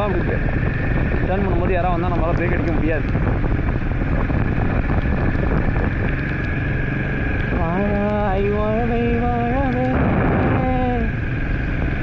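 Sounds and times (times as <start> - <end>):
motorcycle engine running: 0.0 - 12.0
wind noise on microphone: 0.0 - 12.0
person singing: 7.5 - 11.2.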